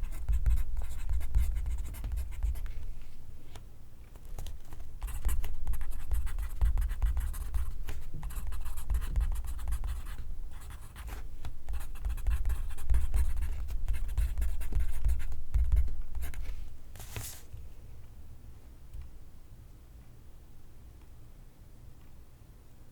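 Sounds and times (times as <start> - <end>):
pencil scratching on paper: 0.0 - 2.8, 5.0 - 16.4.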